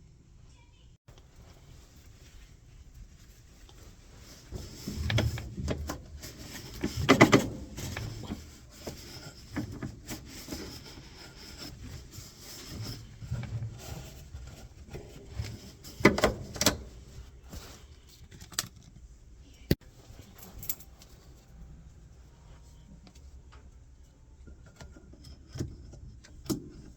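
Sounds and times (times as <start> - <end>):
tools and metal parts clinking: 20.2 - 21.4.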